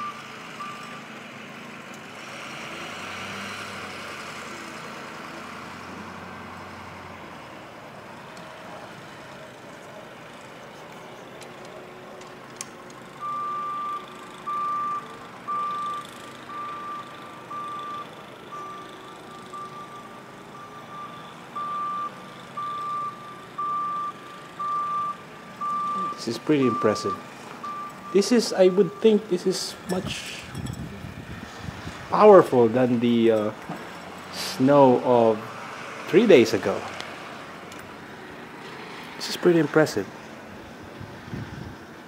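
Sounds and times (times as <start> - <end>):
truck reversing alarm beeping: 0.0 - 1.8, 13.0 - 31.6
truck engine running: 0.0 - 42.0.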